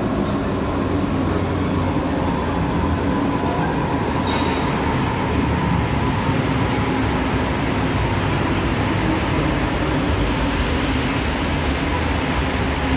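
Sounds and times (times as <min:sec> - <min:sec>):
electric train hum: 0:00.0 - 0:12.9.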